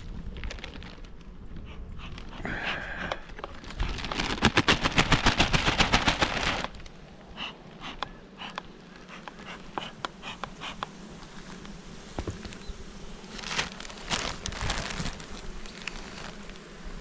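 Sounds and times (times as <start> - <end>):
rustling: 0.0 - 2.4, 3.1 - 7.1, 10.8 - 16.9
honeybees buzzing: 1.4 - 17.0.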